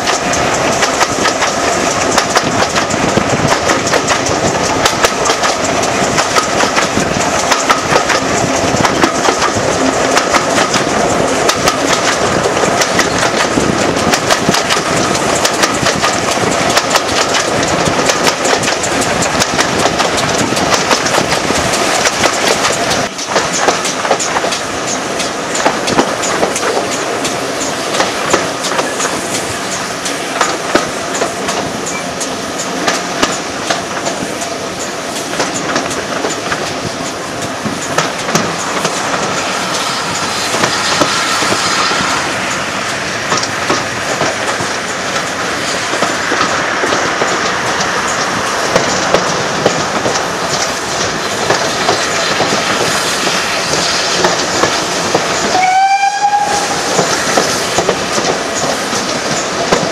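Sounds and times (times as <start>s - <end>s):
train rumbling along: 0.0s - 59.9s
wheels clacking over rail joints: 0.0s - 59.9s
high-pitched train toot: 55.4s - 57.0s.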